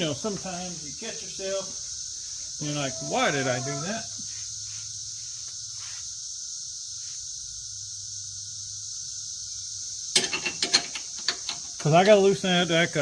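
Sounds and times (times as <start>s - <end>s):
crickets chirring: 0.0s - 13.0s
sharp metallic clinks: 10.1s - 12.4s.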